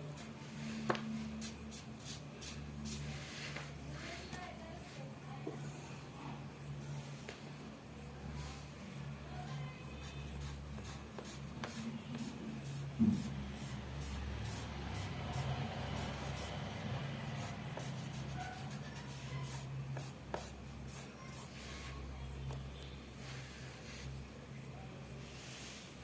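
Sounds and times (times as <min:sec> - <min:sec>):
drawing tool scratching on paper: 0:10.0 - 0:16.6, 0:17.2 - 0:22.0.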